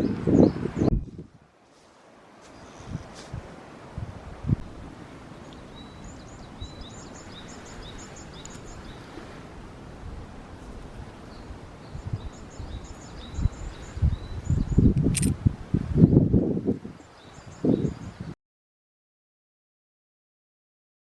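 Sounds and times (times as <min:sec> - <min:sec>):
songbird chirping: 0:00.0 - 0:03.3, 0:05.3 - 0:09.2, 0:10.6 - 0:15.3
low outdoor rustle: 0:00.9 - 0:16.0.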